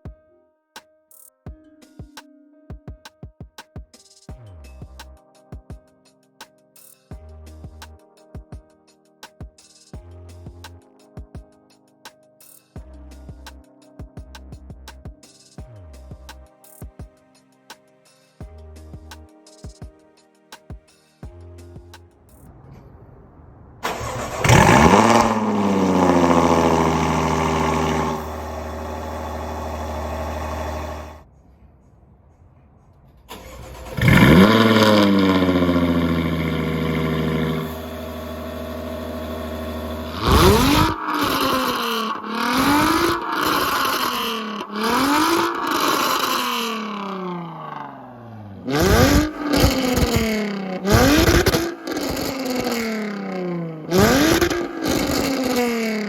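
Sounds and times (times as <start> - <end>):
car engine revving and idling: 23.8 - 31.2, 33.3 - 56.0.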